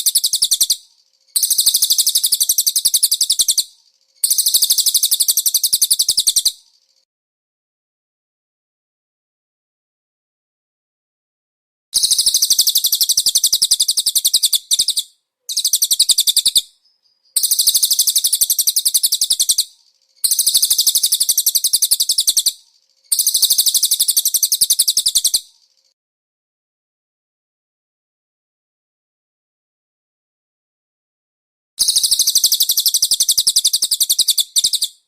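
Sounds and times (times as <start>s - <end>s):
bird trilling: 0.0s - 0.8s, 1.4s - 6.6s, 12.0s - 25.5s, 31.8s - 35.0s.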